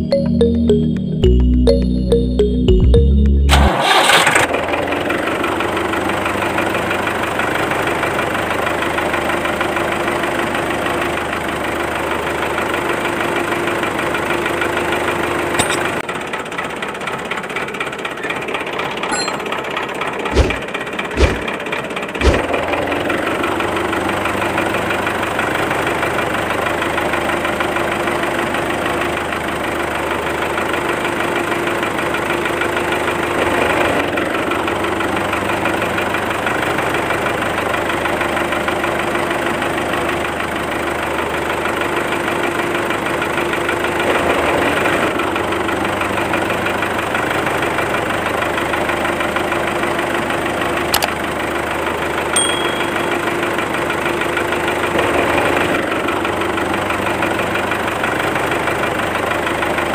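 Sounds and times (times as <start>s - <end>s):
low thumps: 20.4s - 20.6s, 21.2s - 21.5s.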